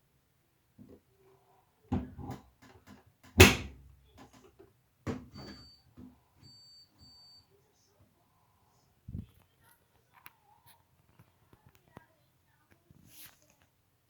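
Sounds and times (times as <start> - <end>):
door knocks and loud bang: 3.4 - 3.8.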